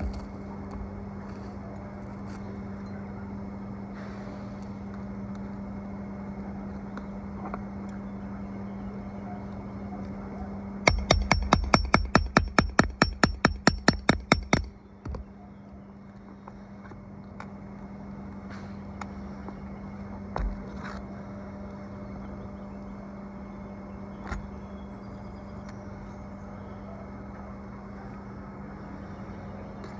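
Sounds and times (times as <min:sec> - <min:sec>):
steady low hum: 0:00.0 - 0:29.9
hammer striking: 0:10.8 - 0:15.2.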